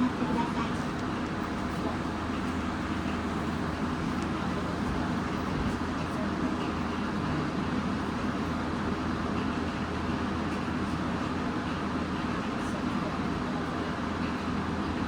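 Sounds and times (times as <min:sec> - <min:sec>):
train interior rumble: 0:00.0 - 0:15.0.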